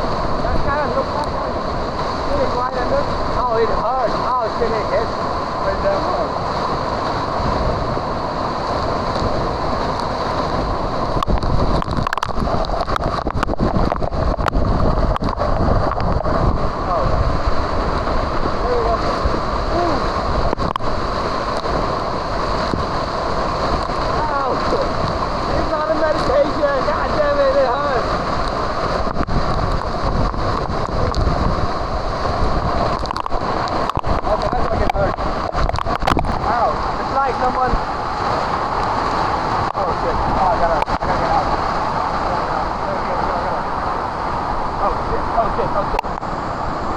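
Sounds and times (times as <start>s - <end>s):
waterfall pouring and splashing: 0.0s - 46.9s
faint clicks: 11.2s - 16.1s.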